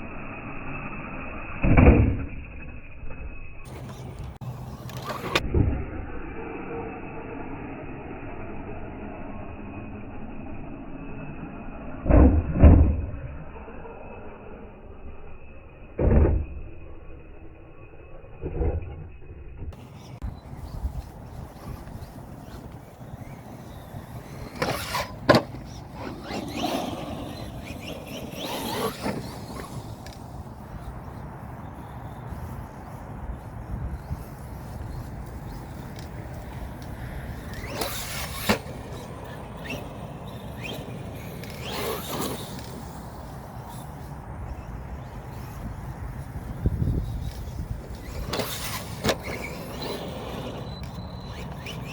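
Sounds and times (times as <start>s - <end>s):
electric motor whining: 19.8s - 32.9s, 33.7s - 51.9s.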